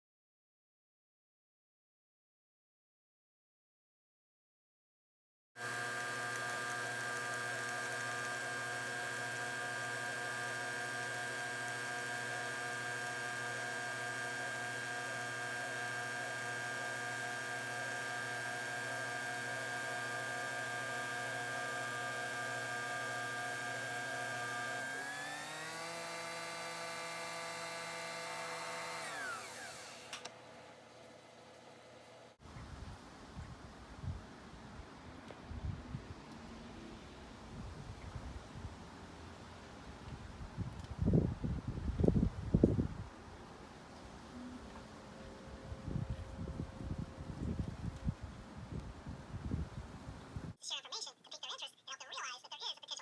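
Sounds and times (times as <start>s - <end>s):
small electric motor whining: 5.6s - 30.4s.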